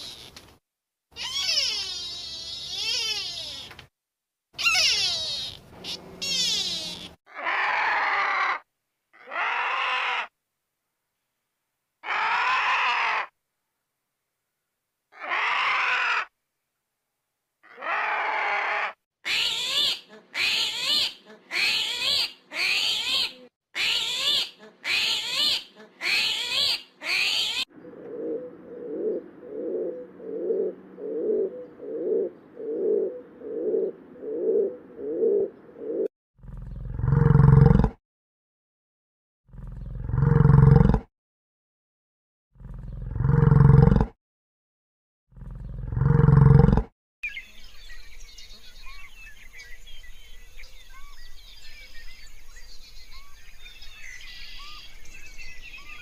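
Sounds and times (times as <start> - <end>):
animal calls: 1.2 - 3.7, 4.6 - 8.6, 9.2 - 10.3, 12.0 - 13.3, 15.1 - 16.3, 17.6 - 36.1
deep roar-like call: 27.8 - 35.5, 36.4 - 37.9, 39.5 - 41.0, 42.6 - 44.1, 45.3 - 46.8.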